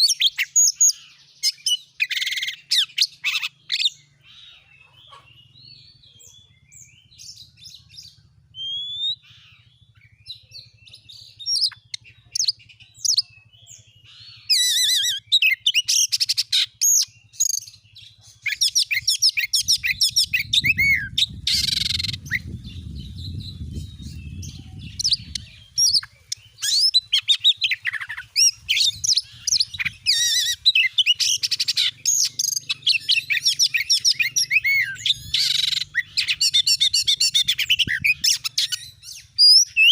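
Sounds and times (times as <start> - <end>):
bird whistling and chirping: 0.0 - 39.9
low rumble: 19.0 - 27.1.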